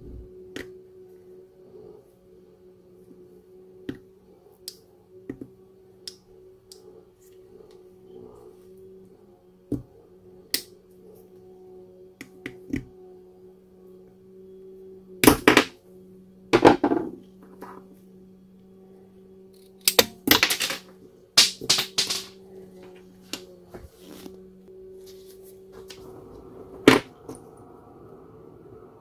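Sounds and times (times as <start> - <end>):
steady low hum: 0.0 - 29.0
parts scraping and rattling: 19.6 - 24.3.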